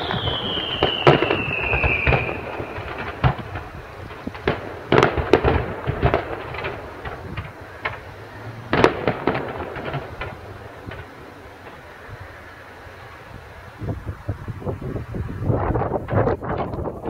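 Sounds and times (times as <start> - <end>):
fireworks bangs and crackling pops: 0.0 - 12.0, 15.9 - 17.0.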